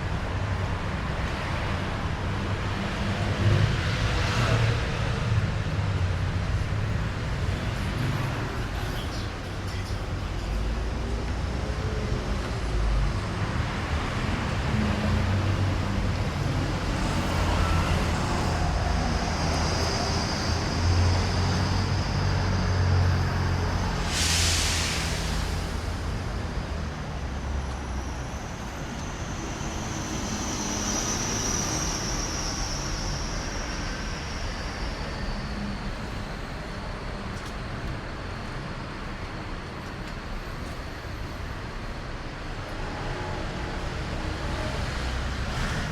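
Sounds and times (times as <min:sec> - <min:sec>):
road traffic passing: 0:00.0 - 0:45.9
short loud hiss: 0:24.0 - 0:25.9.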